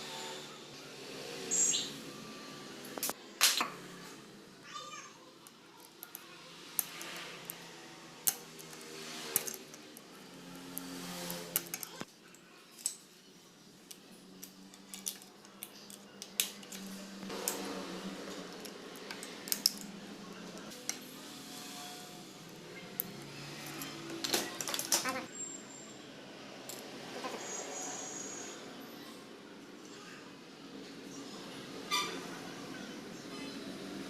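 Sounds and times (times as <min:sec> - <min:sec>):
metal tools clinking: 0:14.4 - 0:17.2.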